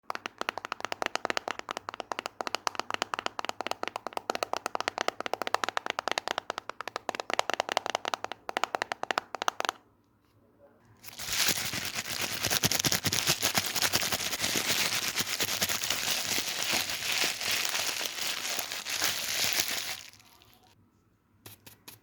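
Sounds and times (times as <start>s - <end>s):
rapid sharp tapping: 11.1s - 20.1s.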